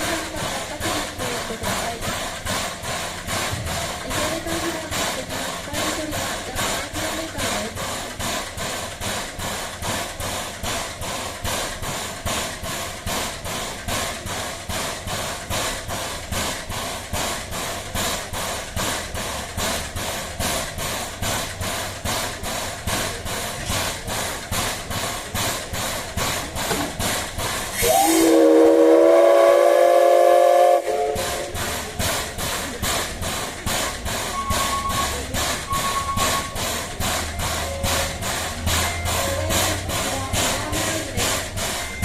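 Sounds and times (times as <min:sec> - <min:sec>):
steam locomotive chuffing: 0:00.0 - 0:42.0
steam whistle: 0:27.8 - 0:31.6, 0:34.3 - 0:36.6.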